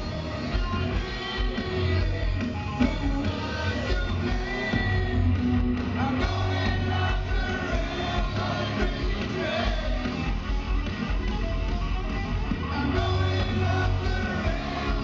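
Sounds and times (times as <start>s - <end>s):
person singing: 0.0s - 10.2s, 12.6s - 15.0s
heavy metal band playing: 0.0s - 15.0s.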